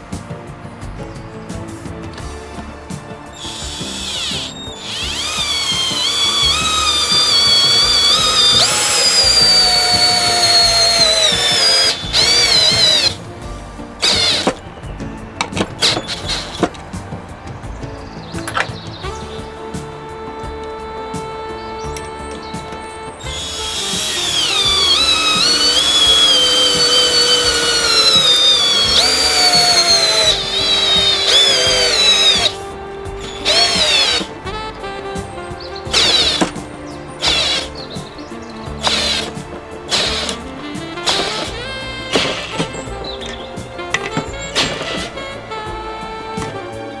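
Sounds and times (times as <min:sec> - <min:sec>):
background music: 0:00.0 - 0:47.0
cordless drill motor whining: 0:01.2 - 0:47.0.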